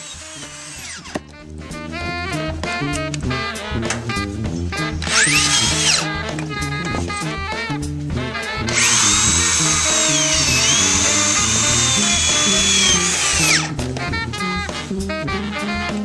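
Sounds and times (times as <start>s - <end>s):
power drill driving screws into metal: 0.0s - 1.2s, 5.0s - 6.1s, 8.7s - 13.7s
swing music: 0.0s - 16.0s.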